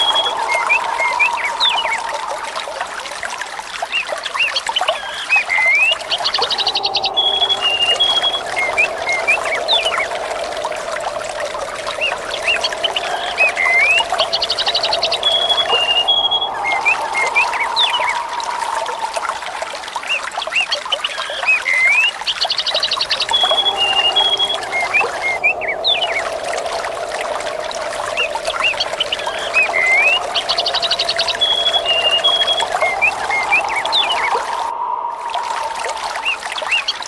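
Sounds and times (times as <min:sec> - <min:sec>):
birds chirping and whistling: 0:00.0 - 0:02.3, 0:04.4 - 0:37.0
water trickling: 0:00.0 - 0:37.0.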